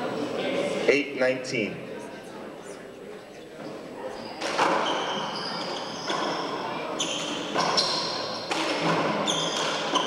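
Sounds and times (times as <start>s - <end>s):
shoes squeaking on court floor: 3.4s - 10.0s.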